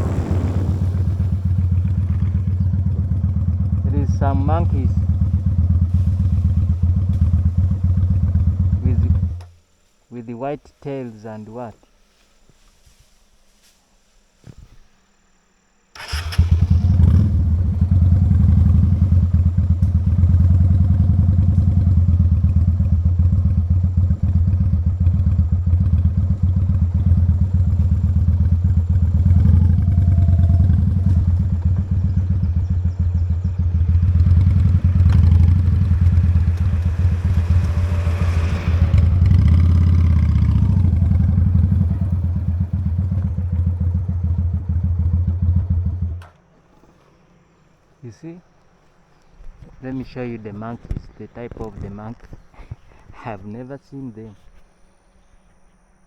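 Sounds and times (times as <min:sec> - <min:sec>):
motorcycle engine running: 0:00.0 - 0:09.6, 0:16.0 - 0:46.8.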